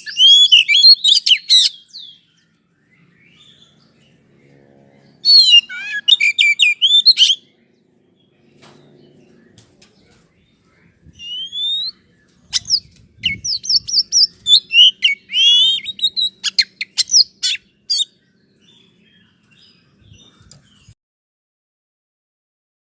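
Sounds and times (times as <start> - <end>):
bird whistles and chattering: 0.0 - 2.2, 5.2 - 7.4, 11.2 - 18.1
faint low hum: 2.0 - 5.8.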